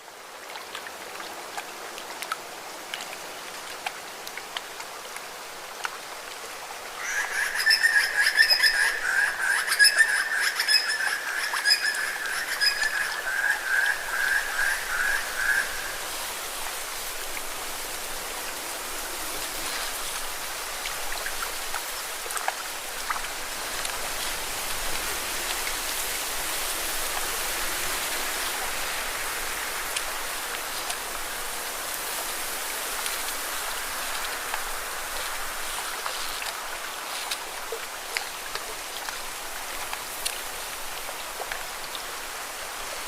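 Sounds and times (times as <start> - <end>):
water splashing against rocks: 19.5 - 42.7.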